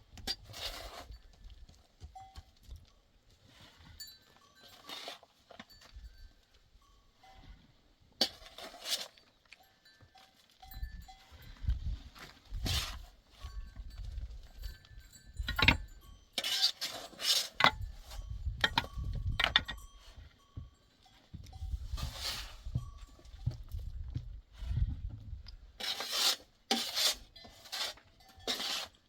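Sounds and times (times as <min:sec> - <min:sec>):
livestock bells clinking: 0:01.1 - 0:07.7, 0:09.2 - 0:11.9, 0:13.3 - 0:16.8, 0:17.8 - 0:23.8.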